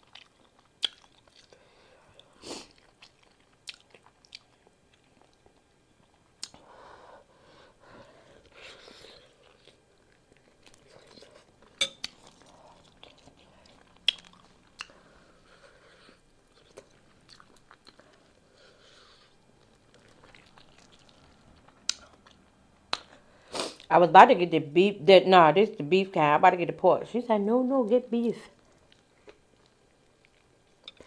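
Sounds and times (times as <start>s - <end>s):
chewing with wet mouth sounds: 0.0s - 6.7s, 8.0s - 23.3s, 28.5s - 31.0s.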